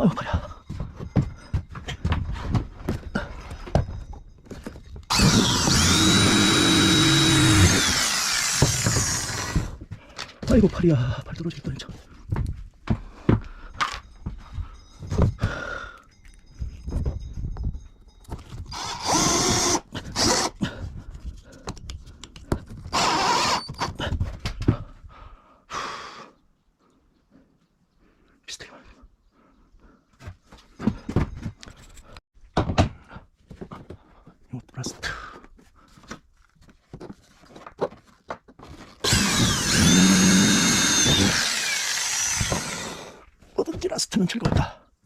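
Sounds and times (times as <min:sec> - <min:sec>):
power drill whining: 0:05.1 - 0:09.8, 0:18.7 - 0:20.6, 0:22.9 - 0:23.9, 0:39.0 - 0:43.2.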